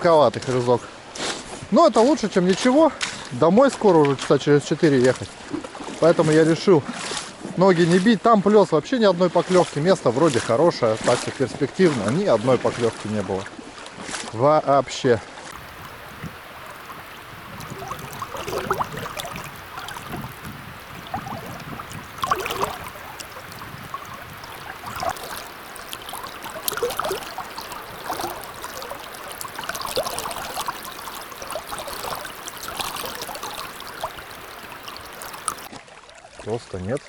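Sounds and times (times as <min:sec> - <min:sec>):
running water gurgling: 0:15.6 - 0:35.7.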